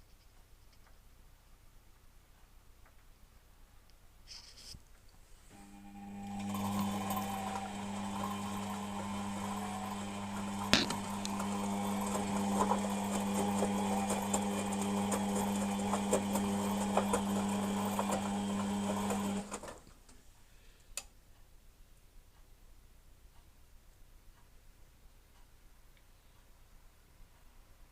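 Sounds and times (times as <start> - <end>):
washing machine motor humming: 5.6 - 19.8.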